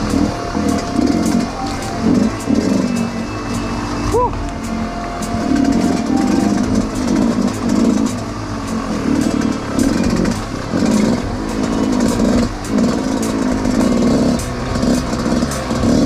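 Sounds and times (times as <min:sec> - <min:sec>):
dirt bike engine revving: 0:00.0 - 0:16.0
sharp clicks and clatter: 0:04.3 - 0:16.0.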